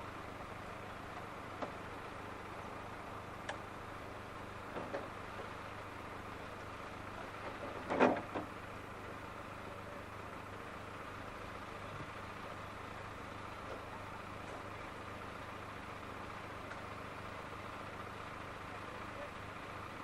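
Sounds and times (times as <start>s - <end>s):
electric tram humming: 0.0s - 20.0s.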